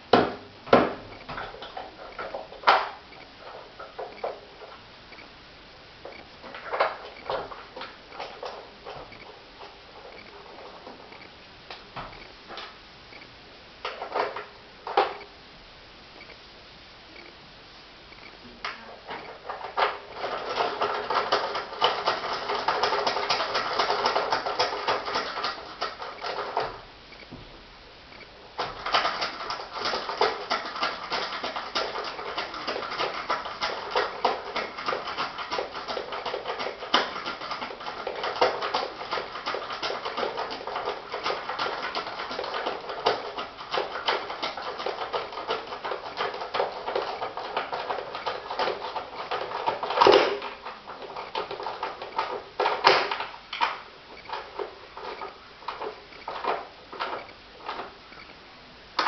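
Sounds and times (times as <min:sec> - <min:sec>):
fine clicks and rattles: 0:18.6 - 0:27.3, 0:28.1 - 0:58.3.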